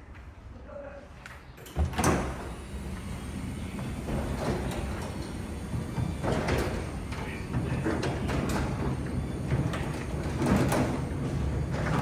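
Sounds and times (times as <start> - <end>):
garage door rolling rumble: 1.6 - 12.0
door sections rattling and knocking: 3.2 - 12.0.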